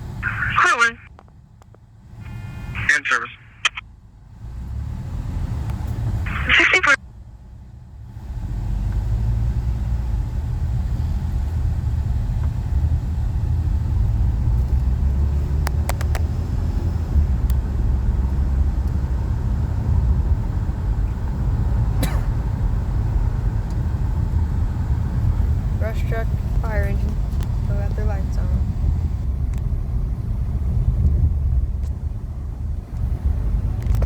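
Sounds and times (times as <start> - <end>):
vehicle engine rumble: 0.0 - 34.0
sharp clicks: 15.6 - 16.3.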